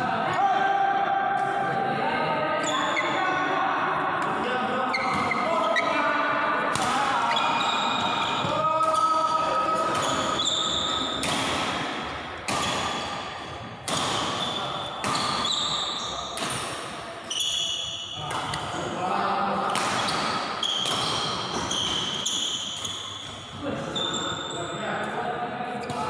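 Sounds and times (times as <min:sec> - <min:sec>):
shoes squeaking on court floor: 0:04.9 - 0:05.9, 0:07.2 - 0:11.4, 0:12.6 - 0:18.8, 0:19.9 - 0:24.8
racket hitting shuttlecock: 0:06.7 - 0:09.0, 0:09.6 - 0:17.1, 0:19.7 - 0:23.5.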